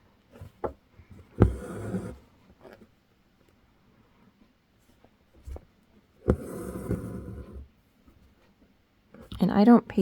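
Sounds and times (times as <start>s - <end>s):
thread rasping through fabric: 1.3s - 2.2s.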